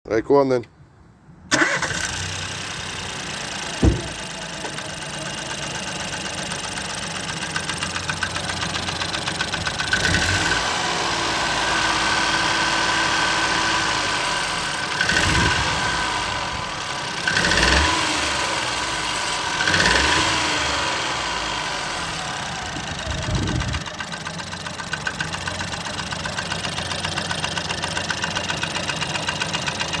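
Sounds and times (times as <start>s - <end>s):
car engine idling with knocking: 2.7s - 30.0s
car engine revving: 9.8s - 23.9s.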